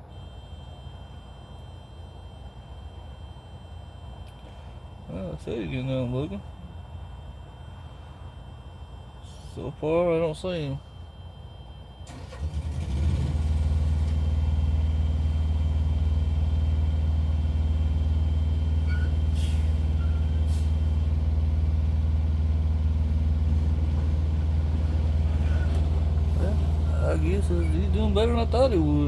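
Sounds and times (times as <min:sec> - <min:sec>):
diesel truck engine idling: 0:11.3 - 0:29.0.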